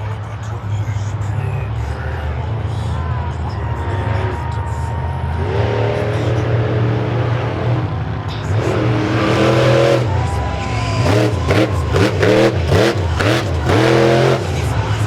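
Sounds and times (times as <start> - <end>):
truck engines revving: 0.0 - 15.0
engine throttle blips: 5.2 - 15.0.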